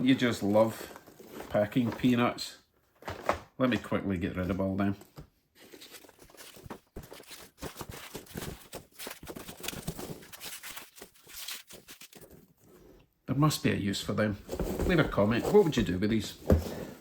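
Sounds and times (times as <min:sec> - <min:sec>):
packing peanuts rustling: 0:05.6 - 0:12.6.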